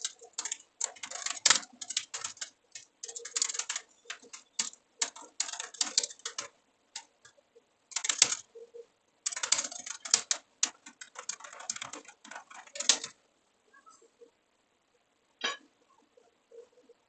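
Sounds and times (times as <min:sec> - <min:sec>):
typing on computer keyboard: 0:00.0 - 0:08.5, 0:09.2 - 0:13.2.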